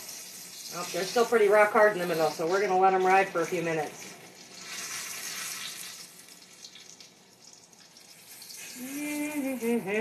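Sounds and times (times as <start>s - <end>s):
slices sizzling in frying oil: 0.0s - 9.8s
woman's voice: 8.8s - 10.0s.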